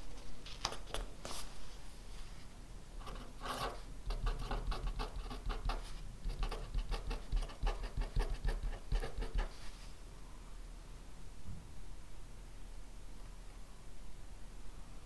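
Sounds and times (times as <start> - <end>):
pen scratching on paper: 3.0 - 9.7.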